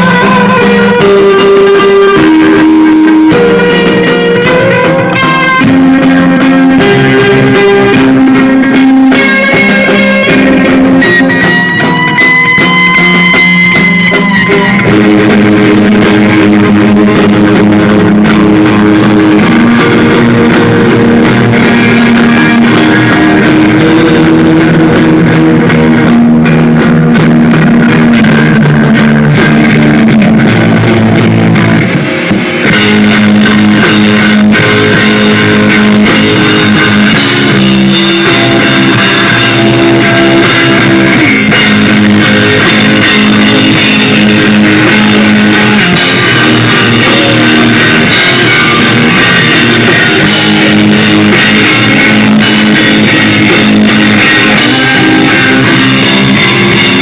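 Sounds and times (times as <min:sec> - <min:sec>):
rock band playing: 0:00.0 - 0:57.0
cymbals: 0:32.6 - 0:57.0.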